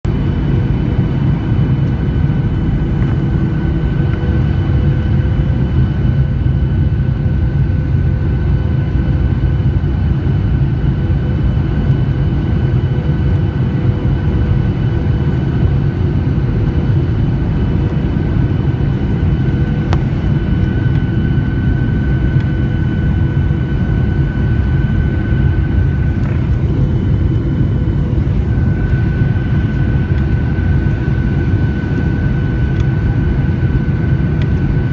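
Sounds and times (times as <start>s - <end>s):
jet airliner engines droning: 0.1s - 34.9s.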